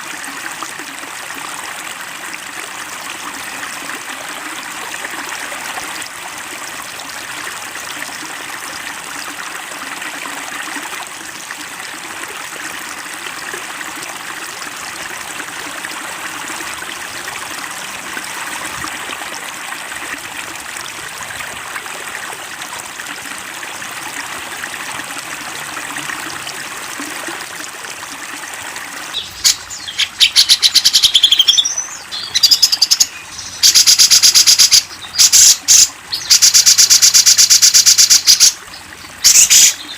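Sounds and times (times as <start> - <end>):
trickling water: 0.0 - 39.9
songbird chattering trills: 29.2 - 38.6, 39.2 - 39.9.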